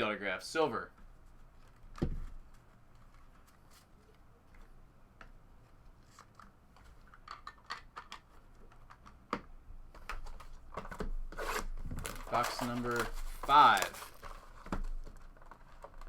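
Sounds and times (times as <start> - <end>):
trading cards rustling and clicking: 11.4 - 16.0.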